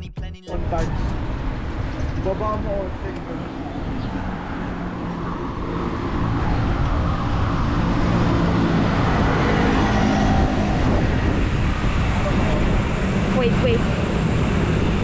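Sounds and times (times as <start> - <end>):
vehicle engine running close by: 0.6 - 15.0.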